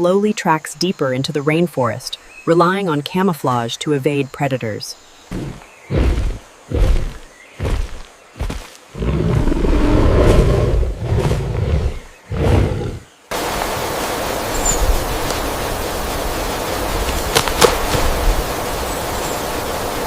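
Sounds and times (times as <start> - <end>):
flowing water: 13.3 - 20.0.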